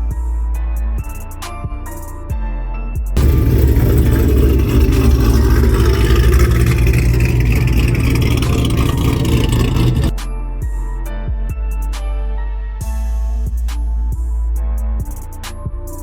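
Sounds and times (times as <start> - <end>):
vehicle engine running: 3.2 - 10.2.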